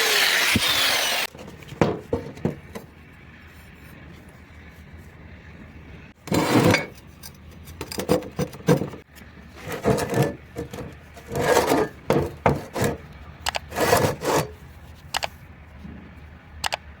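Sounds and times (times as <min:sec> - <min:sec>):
hand tool filing metal: 0:00.0 - 0:01.3, 0:09.6 - 0:13.0, 0:13.6 - 0:14.6.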